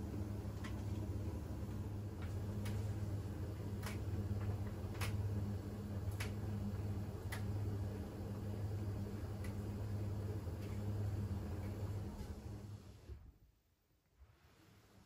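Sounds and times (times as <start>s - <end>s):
washing machine humming: 0.0s - 13.7s.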